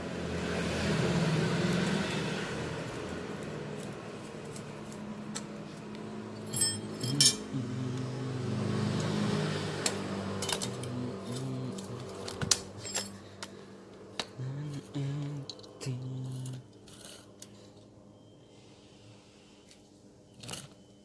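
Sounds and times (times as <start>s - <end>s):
steady low hum: 2.9s - 8.8s, 9.8s - 19.7s
metal parts clinking: 6.4s - 7.5s, 10.4s - 13.5s.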